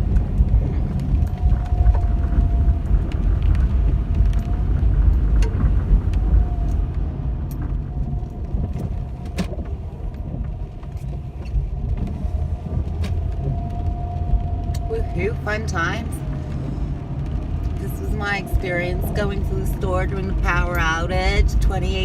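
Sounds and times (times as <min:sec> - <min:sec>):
tyre and engine rumble: 0:00.0 - 0:22.0.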